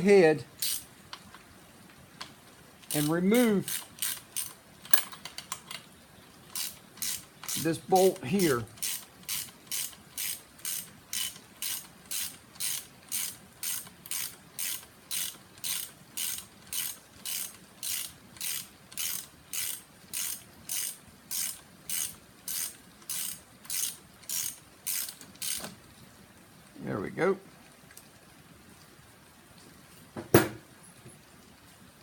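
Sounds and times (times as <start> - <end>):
hand ratchet clicking: 0.6 - 0.8, 2.8 - 5.8, 6.5 - 25.7.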